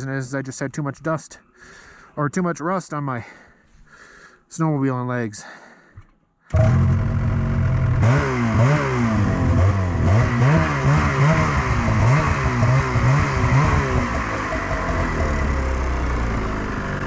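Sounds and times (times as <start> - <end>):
snowmobile engine revving: 6.5 - 17.0.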